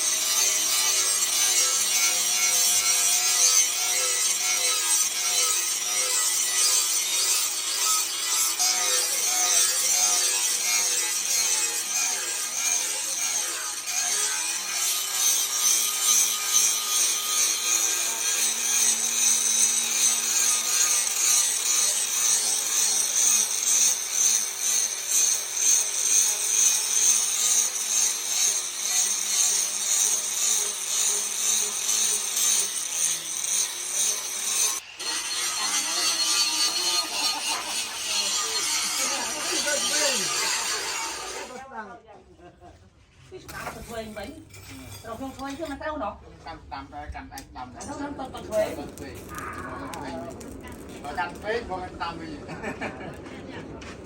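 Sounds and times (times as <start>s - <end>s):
steel rasping under a file: 0.0s - 41.7s, 43.4s - 46.0s, 47.8s - 51.8s.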